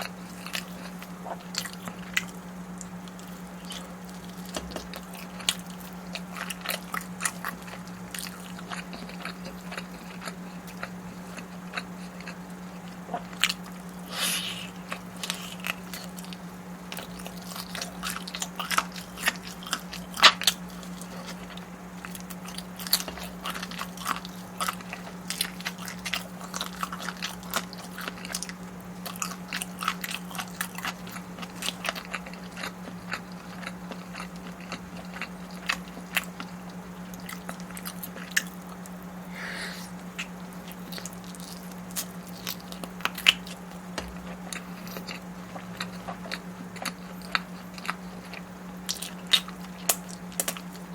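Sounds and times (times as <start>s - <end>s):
person chewing crunchy food: 0.0s - 50.9s
low hum: 38.6s - 41.6s.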